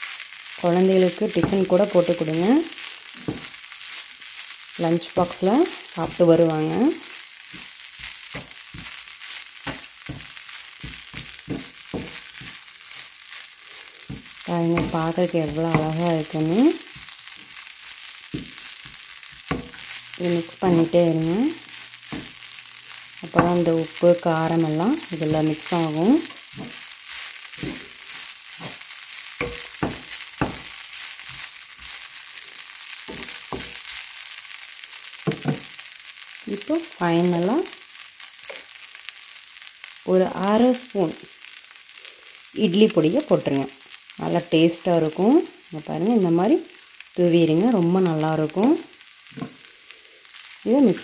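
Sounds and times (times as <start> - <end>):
food sizzling in a pan: 0.0 - 51.0
wooden spatula stirring: 1.3 - 4.5, 7.4 - 34.2.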